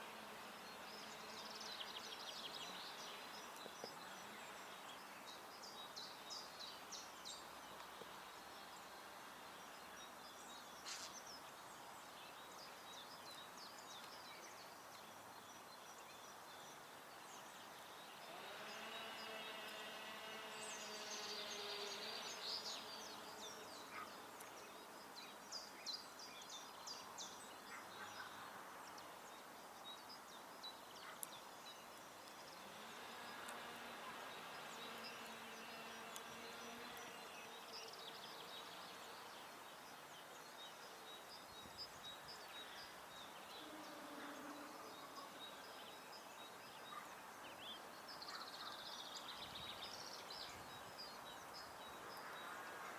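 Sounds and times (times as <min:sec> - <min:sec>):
outdoor background hiss: 0:00.0 - 0:52.9
small birds chirping: 0:00.0 - 0:52.9
distant engine hum: 0:17.8 - 0:24.3, 0:32.2 - 0:39.0.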